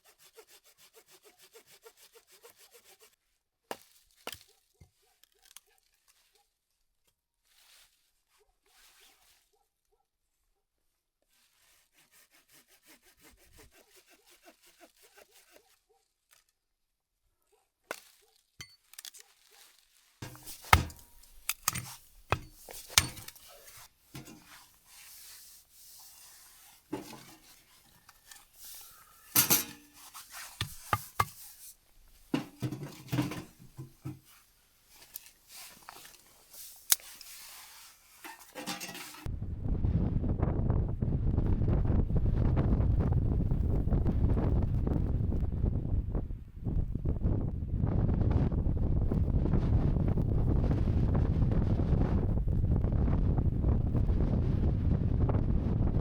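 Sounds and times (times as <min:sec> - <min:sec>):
objects knocking and clinking: 0:20.2 - 0:24.5, 0:29.3 - 0:30.0, 0:32.4 - 0:34.2.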